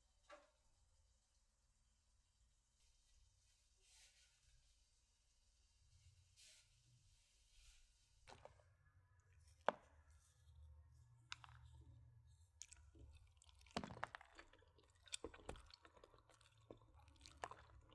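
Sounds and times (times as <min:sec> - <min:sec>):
wet chewing: 0:09.3 - 0:17.9.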